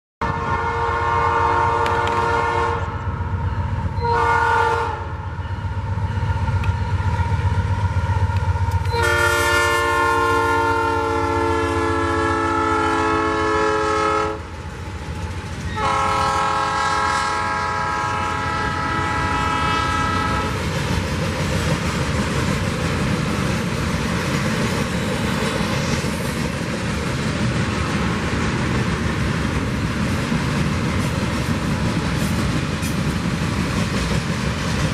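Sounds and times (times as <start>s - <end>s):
train horn blasts: 0.2s - 3.2s, 3.9s - 5.7s, 8.8s - 14.5s, 15.7s - 20.6s
passing train rumble and clatter: 0.2s - 34.9s.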